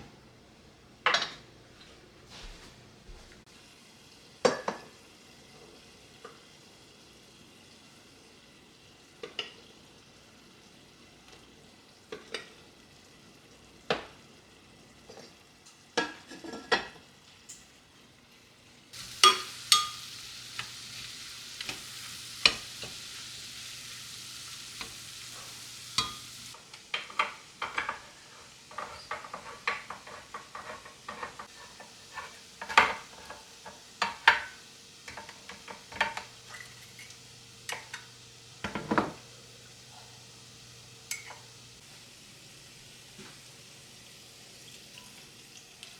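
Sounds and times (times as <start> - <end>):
food sizzling in a pan: 2.3 - 45.9
utensil scraping a pan: 19.0 - 26.6, 27.6 - 34.2.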